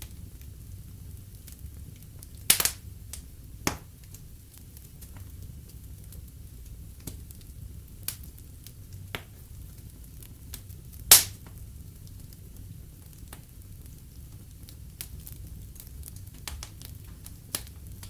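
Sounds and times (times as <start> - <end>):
fire crackling: 0.0 - 18.0
fire rumbling: 0.0 - 18.0
loud sharp pop from fire: 2.4 - 3.9, 11.0 - 11.6.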